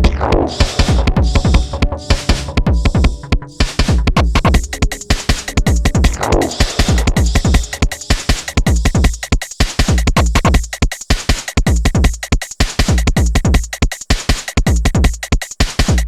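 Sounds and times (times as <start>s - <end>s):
deep kick drums: 0.0s - 10.7s
electronic music beat: 0.0s - 16.0s.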